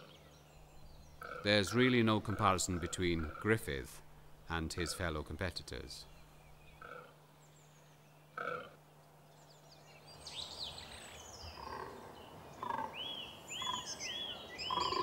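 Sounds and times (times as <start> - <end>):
small birds singing: 0.0 - 15.0
deer rutting groan: 0.8 - 5.2.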